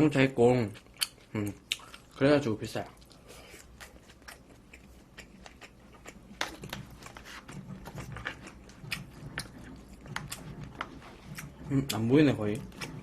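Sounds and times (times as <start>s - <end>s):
chewing and biting: 0.7s - 13.0s
wet mouth clicks: 0.8s - 2.2s.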